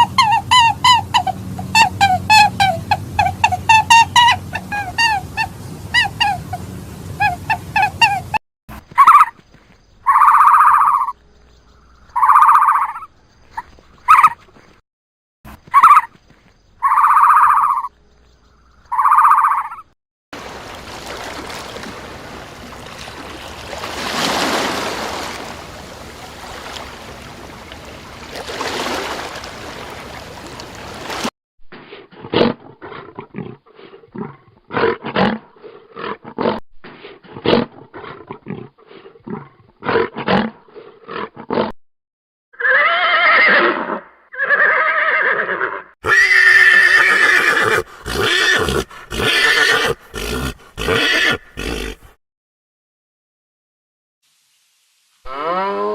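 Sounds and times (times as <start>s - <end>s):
short animal calls: 10.0s - 11.2s
horse whinnying: 42.6s - 52.1s.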